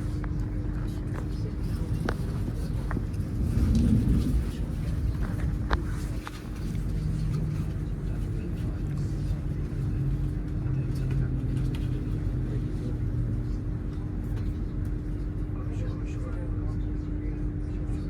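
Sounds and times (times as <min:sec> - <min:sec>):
constant hum: 0:00.0 - 0:18.0
train wheels rumbling: 0:01.1 - 0:15.5.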